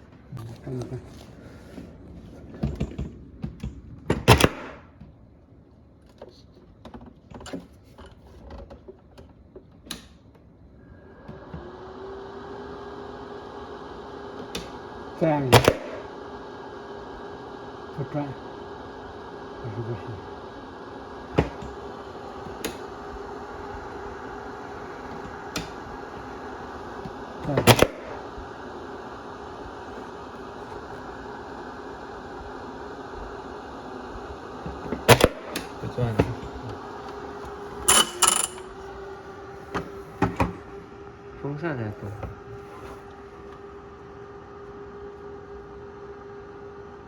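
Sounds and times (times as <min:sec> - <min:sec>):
refrigerator humming: 0:00.0 - 0:47.0
plastic parts clicking and knocking: 0:37.8 - 0:38.7.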